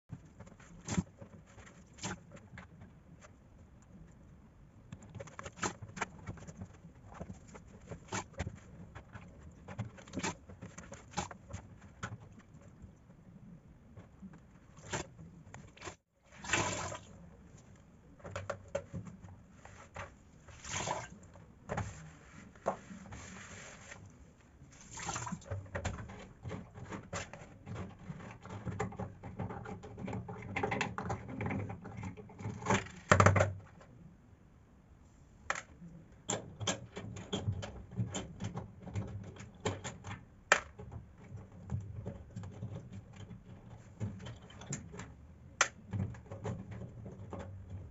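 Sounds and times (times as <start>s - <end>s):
plastic clicks and knocks: 18.2s - 19.4s, 25.4s - 33.9s, 35.5s - 47.9s.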